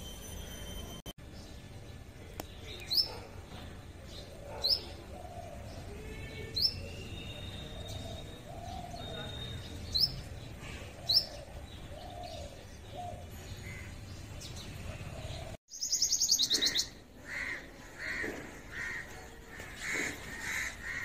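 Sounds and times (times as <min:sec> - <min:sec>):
small birds chirping: 0:01.2 - 0:21.0.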